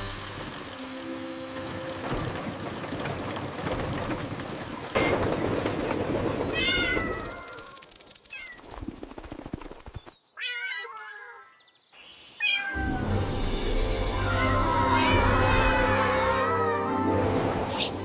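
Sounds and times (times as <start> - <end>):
music: 0.0 - 2.7, 12.8 - 18.0
meow-like animal cries: 6.5 - 7.7, 10.4 - 11.6, 12.4 - 13.2, 14.1 - 17.1.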